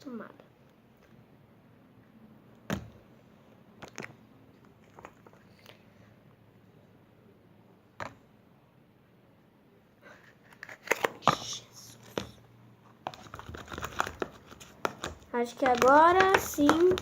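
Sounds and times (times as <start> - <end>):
slime squelching by hand: 13.1 - 17.0.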